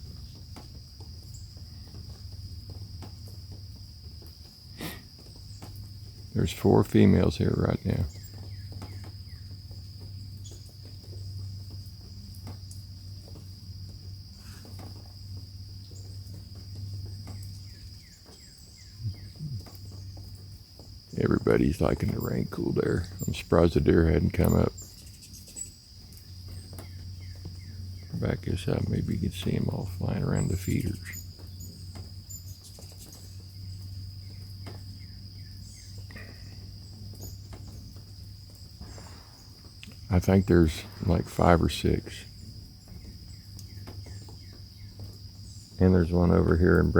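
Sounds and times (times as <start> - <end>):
insects chorus: 0.0 - 46.9
steady low hum: 0.0 - 46.9
low hum: 18.9 - 20.2.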